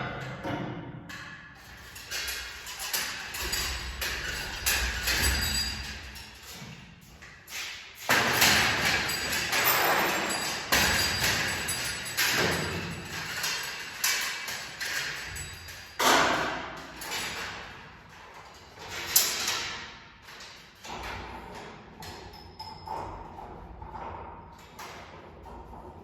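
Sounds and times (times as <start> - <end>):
thumps with rattling scraping: 1.6 - 13.7.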